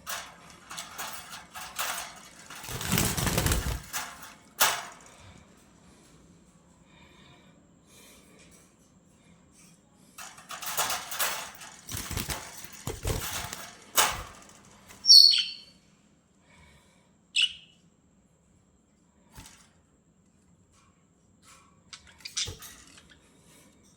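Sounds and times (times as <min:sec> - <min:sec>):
birds flapping wings: 0:00.1 - 0:05.0, 0:10.2 - 0:15.0
sharp bird chirps: 0:15.0 - 0:15.8, 0:17.4 - 0:17.8.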